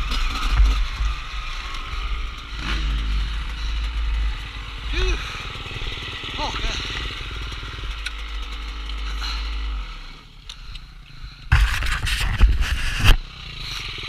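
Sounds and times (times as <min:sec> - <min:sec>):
motorcycle engine running: 0:00.0 - 0:14.0
loud rough burst of noise: 0:11.5 - 0:13.2.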